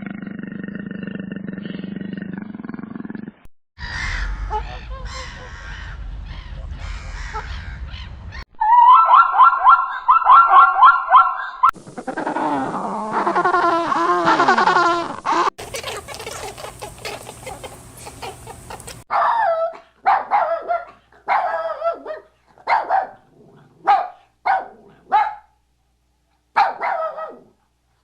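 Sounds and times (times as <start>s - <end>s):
dog barking: 8.8s - 11.7s, 19.0s - 25.6s, 26.6s - 27.6s.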